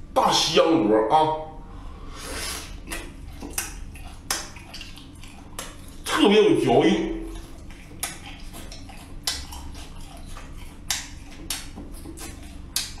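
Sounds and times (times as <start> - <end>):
wet chewing clicks and smacks: 2.7 - 13.0.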